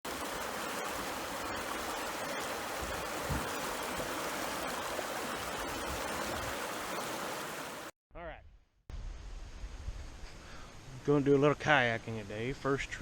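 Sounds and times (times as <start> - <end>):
river water rushing over riffle: 0.0 - 7.9.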